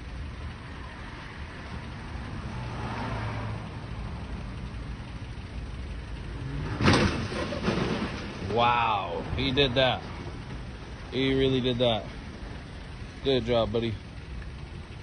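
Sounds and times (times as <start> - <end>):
truck engine revving: 2.0 - 13.9
loud crash: 6.6 - 8.6.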